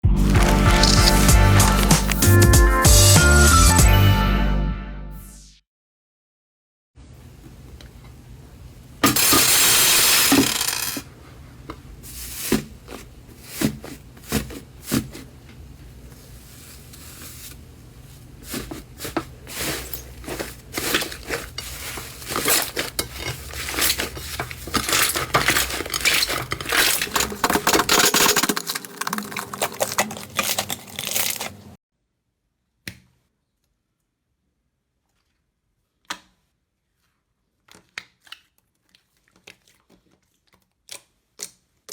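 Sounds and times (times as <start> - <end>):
slime crackling and popping: 0.2 - 2.4, 24.7 - 31.7.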